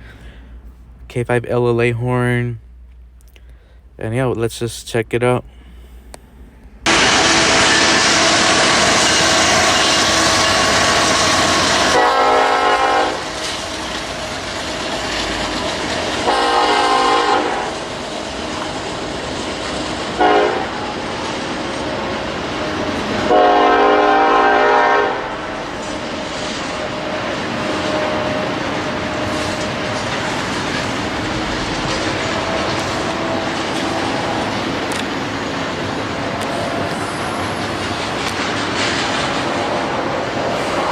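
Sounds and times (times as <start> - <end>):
train rolling rumble: 3.8 - 40.9
train air horn: 6.9 - 14.4, 16.1 - 17.9, 20.0 - 21.1, 22.7 - 30.1, 31.4 - 34.5
rail clatter: 6.9 - 40.9.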